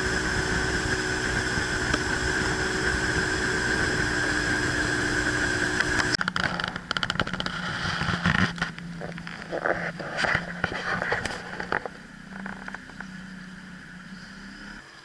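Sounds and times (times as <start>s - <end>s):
boat motor running: 0.0s - 14.8s
knocks and clicks: 5.8s - 7.5s.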